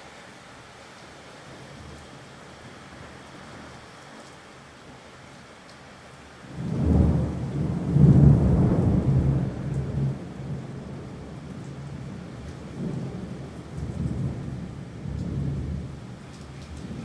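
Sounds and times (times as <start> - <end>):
steady rain: 0.0 - 17.0
thunder rumbling: 6.5 - 17.0.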